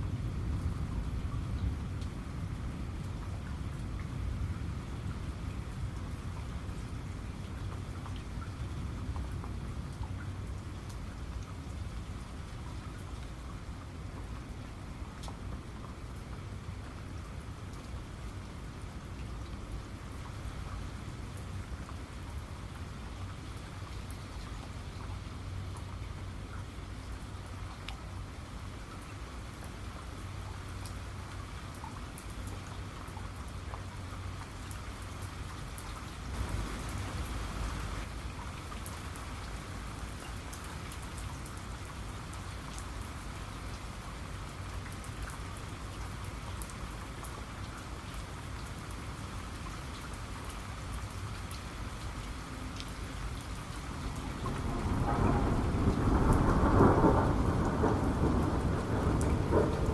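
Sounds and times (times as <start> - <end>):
heavy rain pattering: 0.0 - 59.9
low thunder rumble: 54.0 - 59.9
rolling peal of thunder: 54.1 - 59.9.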